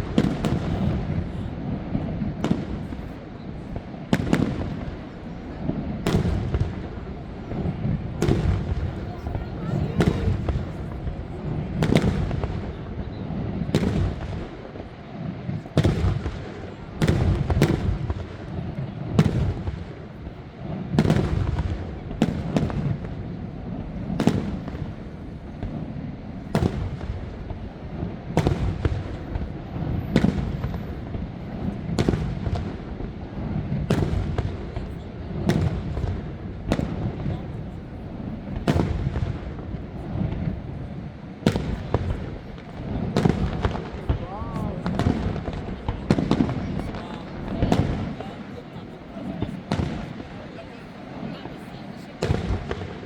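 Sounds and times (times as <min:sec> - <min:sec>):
fireworks bursting: 0:00.0 - 0:53.0.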